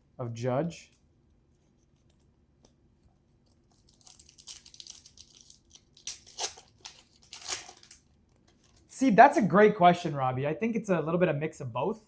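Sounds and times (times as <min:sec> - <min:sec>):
foil wrapper crinkling and tearing: 0:03.6 - 0:08.9.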